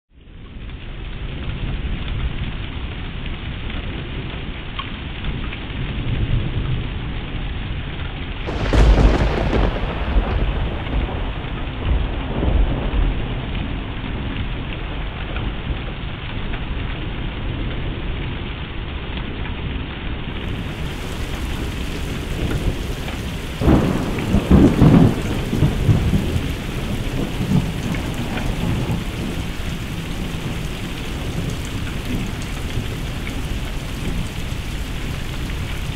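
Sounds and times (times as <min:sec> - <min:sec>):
steady rain: 0:00.1 - 0:35.9
thunderclap rumbling: 0:08.4 - 0:18.1, 0:20.4 - 0:35.9.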